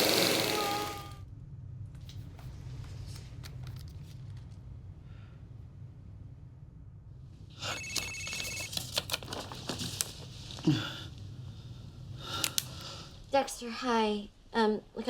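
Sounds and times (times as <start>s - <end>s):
phone ringing: 7.6s - 8.8s.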